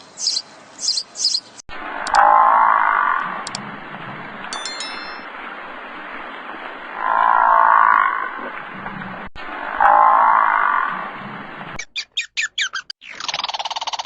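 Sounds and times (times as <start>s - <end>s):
ringing ding: 4.5s - 5.3s.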